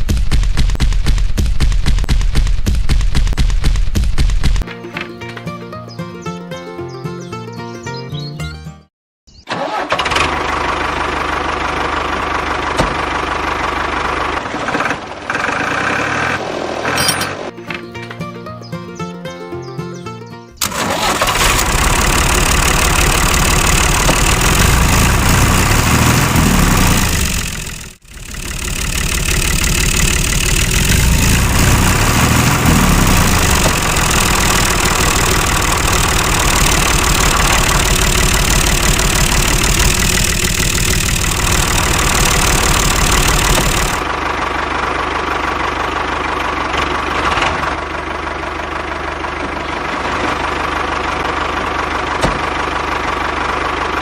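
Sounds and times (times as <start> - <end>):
small engine running: 9.5 - 17.2, 20.6 - 54.0.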